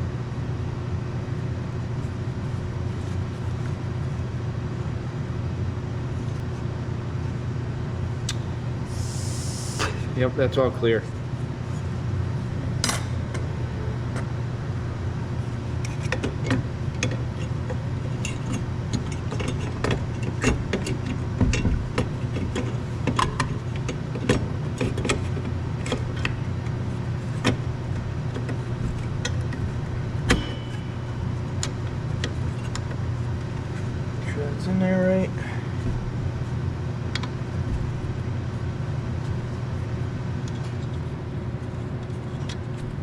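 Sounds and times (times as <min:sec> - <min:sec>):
low mechanical hum: 0:00.0 - 0:43.0.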